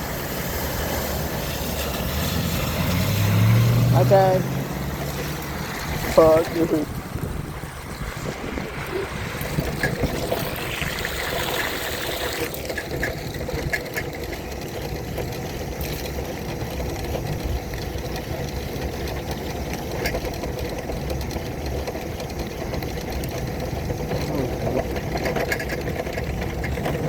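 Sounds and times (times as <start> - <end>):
rain hissing: 0.0 - 19.9
wheelchair motor hum: 0.0 - 27.0.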